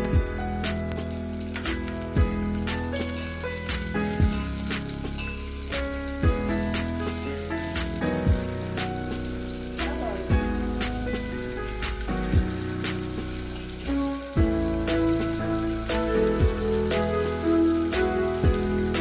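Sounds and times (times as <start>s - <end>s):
instrumental music with thumps: 0.0s - 5.2s, 6.2s - 7.2s, 7.8s - 13.4s, 14.0s - 17.2s
nuts sizzling in hot fat: 0.0s - 19.0s.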